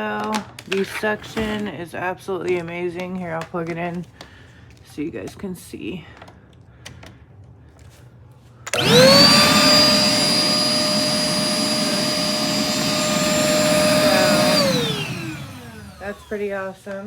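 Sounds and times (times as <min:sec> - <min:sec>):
shop vac switch: 0:08.7 - 0:16.4
vacuum motor whine and air rush: 0:08.7 - 0:16.7.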